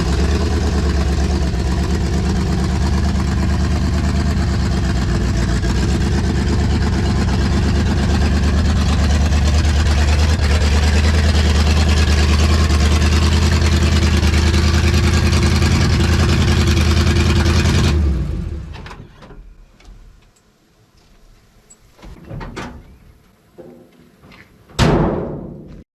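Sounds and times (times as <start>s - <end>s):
car engine running: 0.0s - 18.8s.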